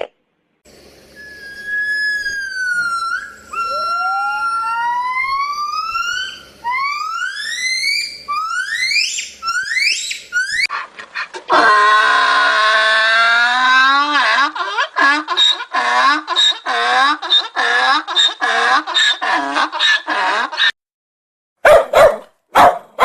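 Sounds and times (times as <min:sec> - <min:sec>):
animal whistle-like gliding calls: 0:00.7 - 0:10.7
fuller lower animal call: 0:01.2 - 0:10.8, 0:11.4 - 0:20.7.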